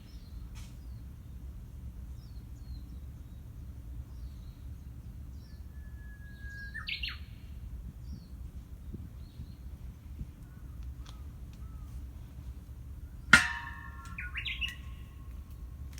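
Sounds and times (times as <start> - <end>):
bird singing whistled song: 5.3 - 7.5.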